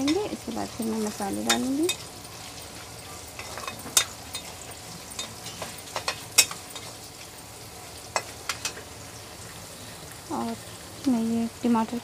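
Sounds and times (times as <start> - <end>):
spoon scraping and knocking pan: 0.0 - 2.0, 3.4 - 6.9, 8.1 - 8.8
onions sizzling in oil: 0.0 - 12.0.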